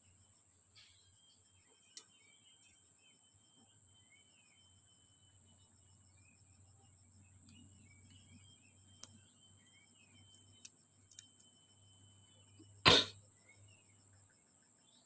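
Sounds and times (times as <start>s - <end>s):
birds chirping: 0.8s - 14.1s
small tools clicking: 10.2s - 11.5s.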